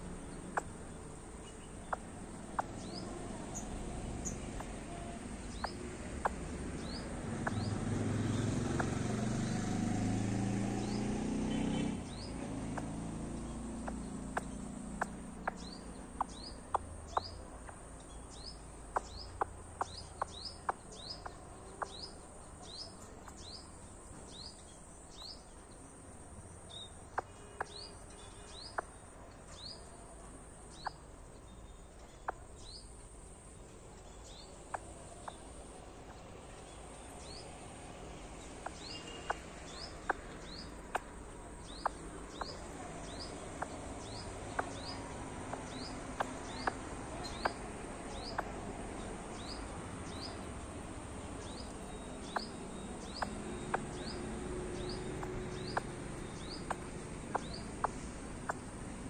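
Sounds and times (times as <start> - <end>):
sharp ticks: 5.5 - 7.7, 12.1 - 22.1, 38.5 - 48.6, 51.4 - 59.0
bird rising chirp: 38.3 - 58.7.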